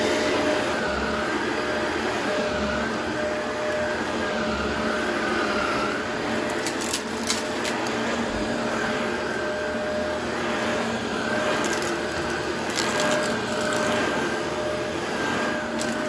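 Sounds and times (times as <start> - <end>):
vacuum cleaner running: 0.0 - 16.0
debris crackling in vacuum: 11.3 - 14.4, 15.5 - 16.0.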